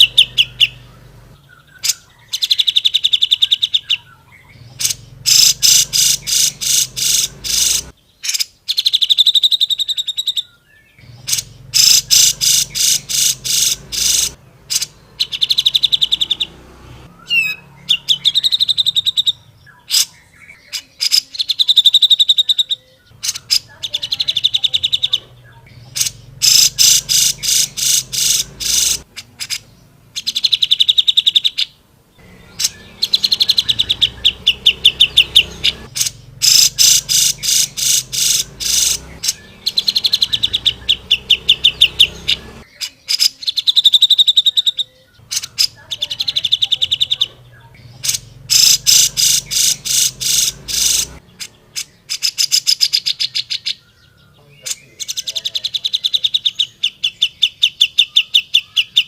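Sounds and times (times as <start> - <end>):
bulbul singing rattling runs: 0.0 - 7.9, 11.0 - 16.7, 23.2 - 31.4, 32.2 - 42.7, 45.2 - 53.1.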